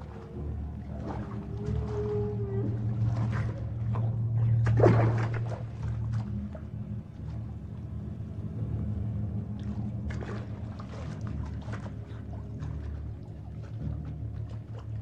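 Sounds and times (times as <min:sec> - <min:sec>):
water splashing from dog swimming: 0:00.0 - 0:07.7, 0:09.6 - 0:15.0
steady low hum: 0:00.0 - 0:15.0.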